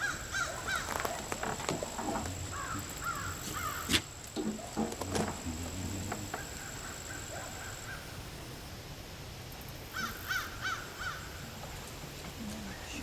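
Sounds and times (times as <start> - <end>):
bird harsh calls: 2.4 - 4.1, 9.9 - 11.4.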